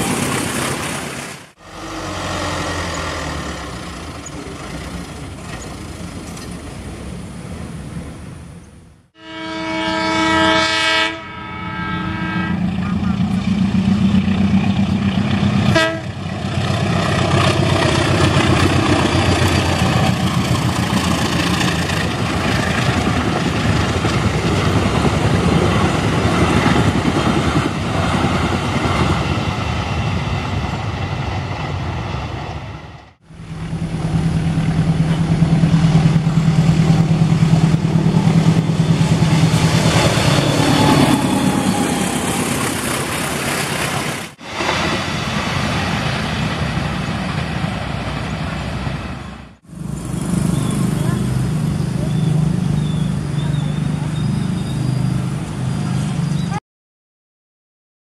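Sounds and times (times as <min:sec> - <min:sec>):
low train drone: 0:01.5 - 0:56.6
train wheels rattling on rails: 0:01.7 - 0:08.1, 0:12.6 - 0:49.4.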